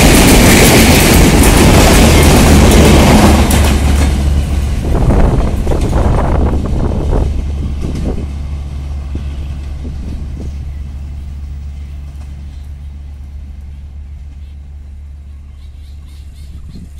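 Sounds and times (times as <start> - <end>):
train rumbling away: 0.0 - 16.9.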